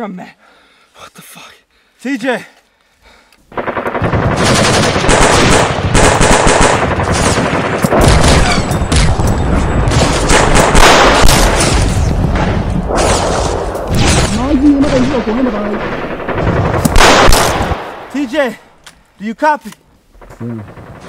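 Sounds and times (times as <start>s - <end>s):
automatic rifle fire: 3.5s - 11.9s, 12.9s - 18.1s.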